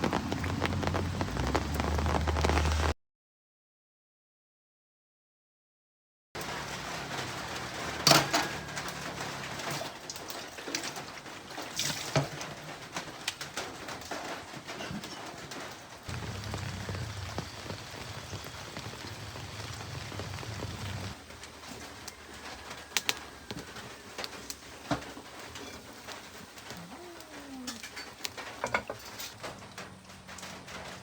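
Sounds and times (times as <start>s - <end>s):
rain falling: 0.0s - 3.0s, 6.4s - 31.0s
pigeon cooing: 26.6s - 27.9s.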